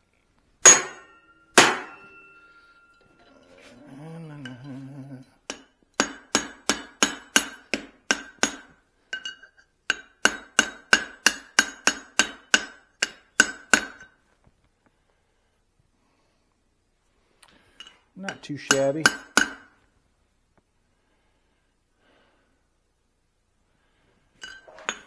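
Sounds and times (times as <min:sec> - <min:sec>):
hammer striking steel on anvil: 0:00.6 - 0:03.2, 0:05.5 - 0:14.1, 0:18.3 - 0:19.7.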